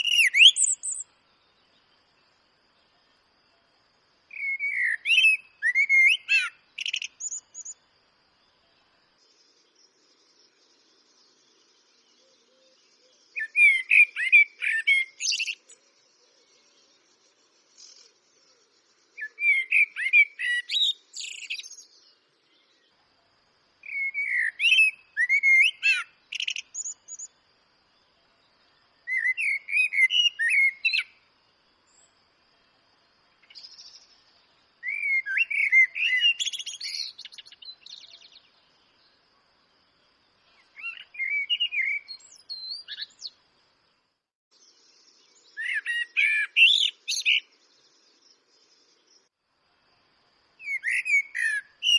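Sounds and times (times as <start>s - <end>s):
blackbird singing fluting notes: 40.8s - 43.3s, 50.6s - 51.9s.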